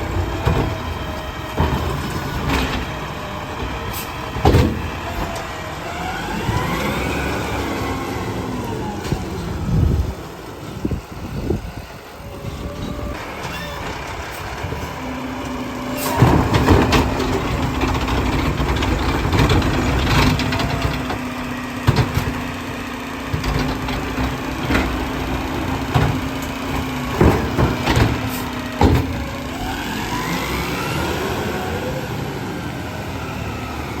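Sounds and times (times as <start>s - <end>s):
compactor knocks and clanks: 0.0s - 5.7s, 12.6s - 29.8s
garbage truck engine hum: 0.0s - 34.0s.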